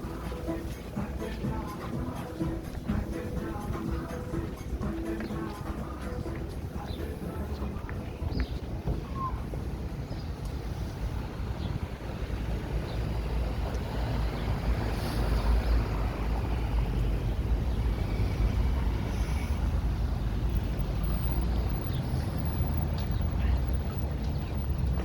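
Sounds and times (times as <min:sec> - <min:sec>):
steady traffic noise: 0:00.0 - 0:25.0
motor vehicle passing by: 0:10.6 - 0:25.0.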